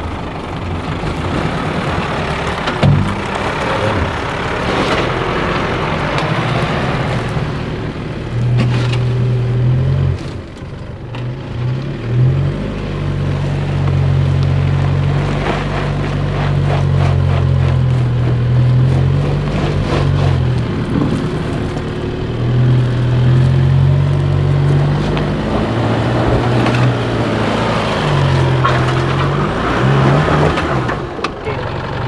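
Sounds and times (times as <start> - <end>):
engine working hard: 0.0 - 32.0
vehicle knocking over ruts: 0.0 - 32.0.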